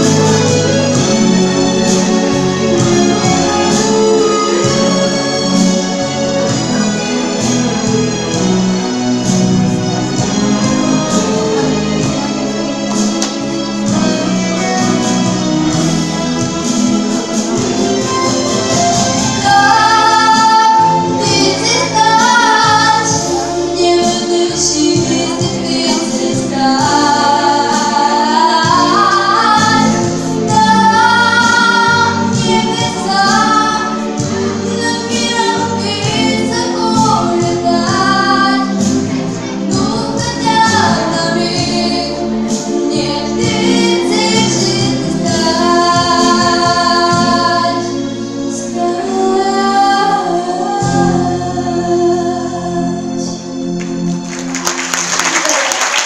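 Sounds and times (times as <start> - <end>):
instrumental backing track: 0.0 - 55.4
woman singing: 19.3 - 34.1, 34.7 - 38.9, 39.7 - 48.0, 48.6 - 53.4.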